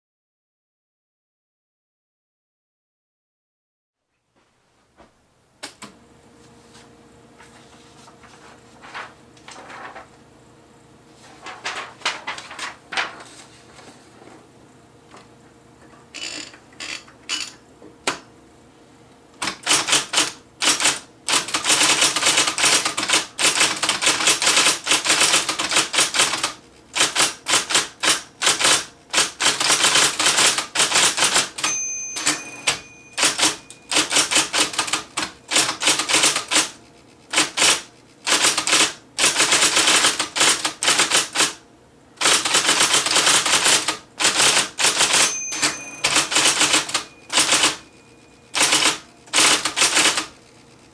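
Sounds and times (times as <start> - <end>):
electric typewriter typing clatter: 11.4 - 13.4, 16.2 - 18.2, 19.4 - 41.6, 42.2 - 50.9.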